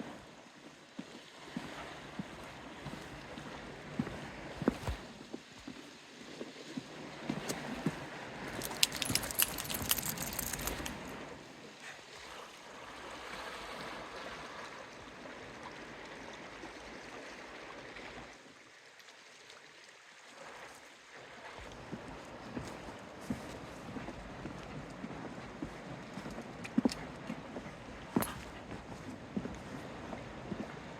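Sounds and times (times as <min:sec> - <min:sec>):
light metallic jingling: 0:08.5 - 0:11.3, 0:28.1 - 0:28.6.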